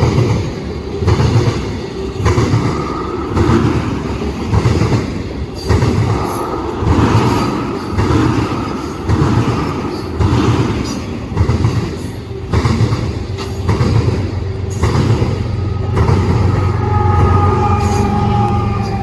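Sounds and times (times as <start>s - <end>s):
freight train rumbling past: 0.0s - 19.0s
high wheel squeal: 16.4s - 19.0s.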